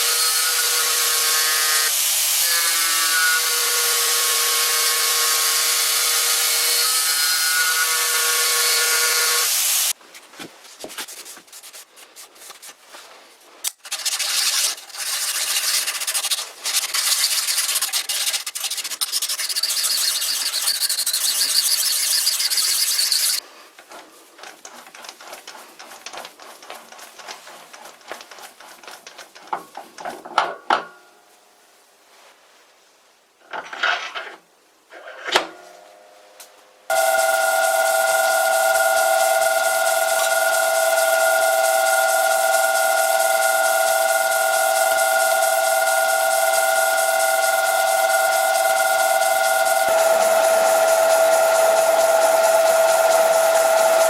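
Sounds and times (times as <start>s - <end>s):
machine cutting steel: 0.0s - 9.9s, 13.7s - 23.4s, 36.9s - 54.0s
rough rasping file strokes: 13.6s - 29.5s, 36.9s - 54.0s.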